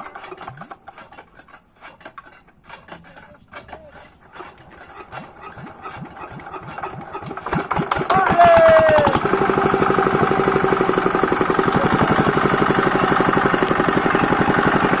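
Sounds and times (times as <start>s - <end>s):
engine running with rapid firing: 5.6s - 15.0s.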